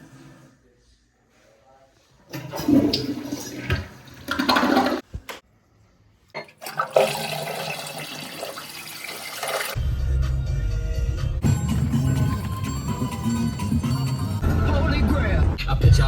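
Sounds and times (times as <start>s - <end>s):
toilet flushing: 2.3s - 5.2s, 6.4s - 9.8s
music: 9.8s - 16.0s.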